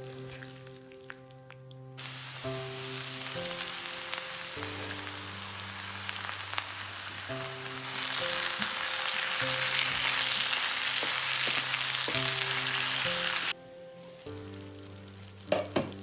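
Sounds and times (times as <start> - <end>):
background music with held notes: 0.0 - 16.0
food sizzling in oil: 2.0 - 13.6.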